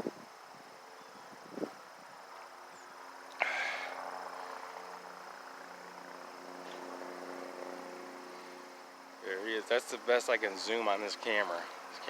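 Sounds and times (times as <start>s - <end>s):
helicopter droning overhead: 3.1s - 12.0s.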